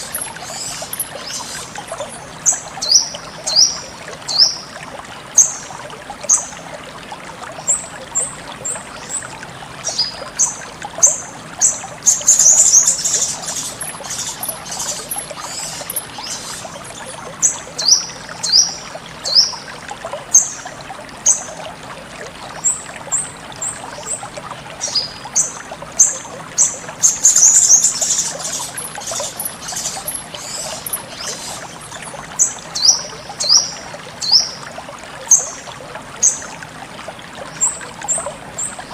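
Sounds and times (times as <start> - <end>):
bird chirping and twittering: 0.0 - 4.6, 9.8 - 19.6, 24.8 - 34.6
trickle of flowing water: 0.0 - 38.9.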